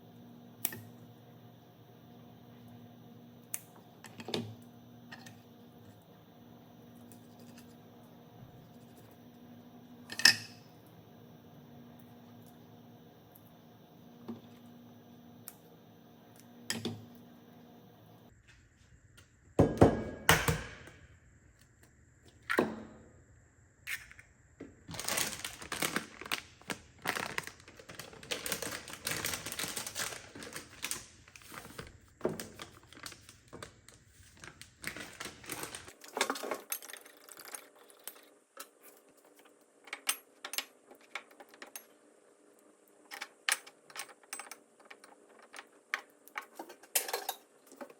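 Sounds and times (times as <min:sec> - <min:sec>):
utensils and dishes clattering: 0:46.5 - 0:47.5.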